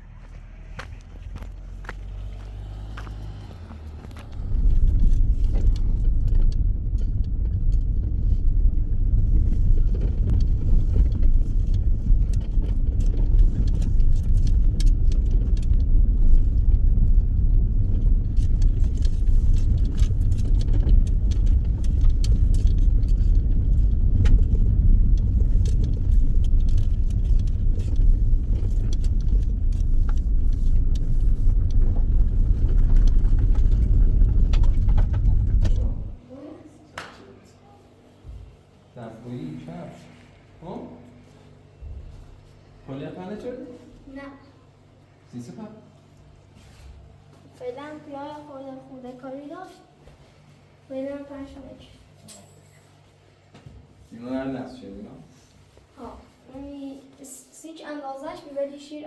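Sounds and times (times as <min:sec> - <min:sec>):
vehicle engine and road noise: 0:00.0 - 0:36.2
light rattles: 0:03.7 - 0:36.2.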